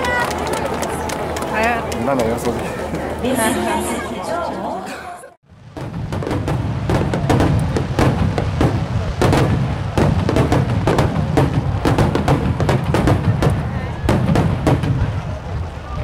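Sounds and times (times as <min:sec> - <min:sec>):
fireworks booming and crackling: 0:05.5 - 0:16.0.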